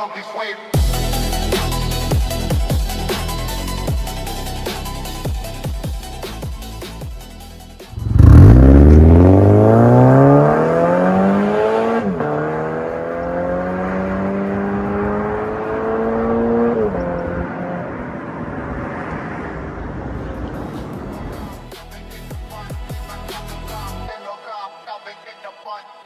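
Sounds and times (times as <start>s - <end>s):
car engine accelerating hard: 7.9s - 21.0s.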